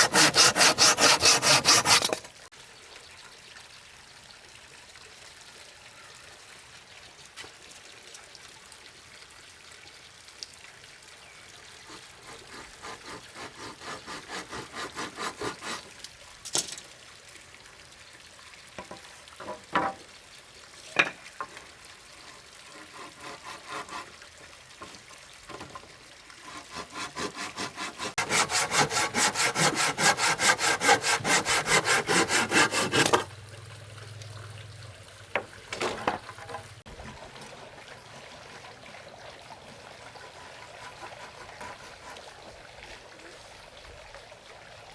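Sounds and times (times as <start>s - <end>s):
hand saw cutting wood: 0.0s - 2.3s, 11.9s - 16.0s, 22.6s - 24.2s, 26.4s - 33.3s, 40.2s - 42.3s.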